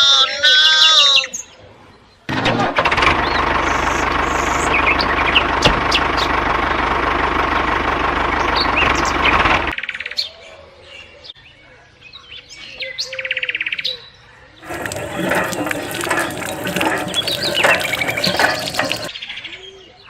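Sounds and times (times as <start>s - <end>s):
birds chirping: 3.2s - 6.4s, 8.3s - 9.4s, 14.6s - 19.2s
machine whining: 14.6s - 19.1s
short rapid rattle: 14.6s - 19.1s.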